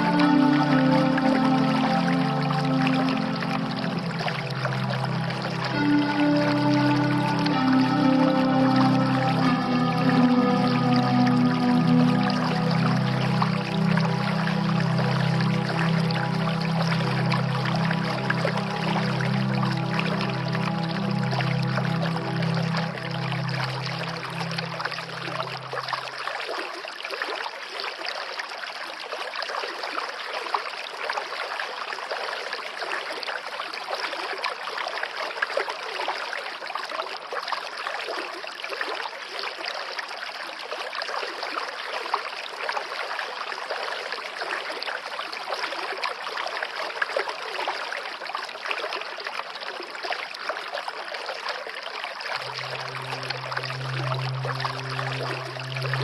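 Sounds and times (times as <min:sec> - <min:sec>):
low held music tone: 0:00.0 - 0:26.3, 0:52.3 - 0:56.0
water flowing and trickling: 0:00.0 - 0:56.0.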